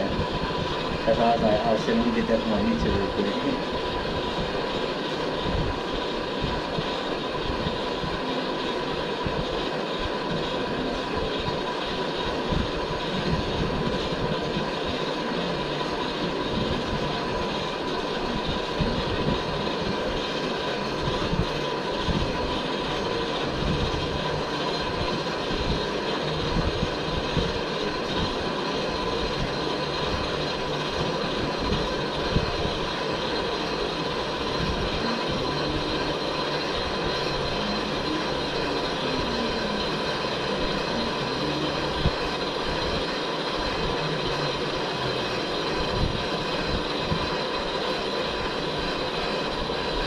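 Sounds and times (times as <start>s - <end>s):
thin steady whine: 0.0s - 50.0s.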